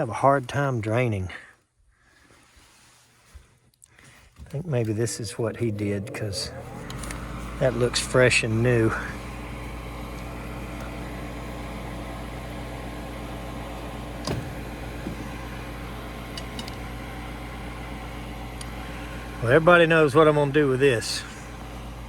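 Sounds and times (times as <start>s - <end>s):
furnace inducer motor hum: 4.4s - 22.0s.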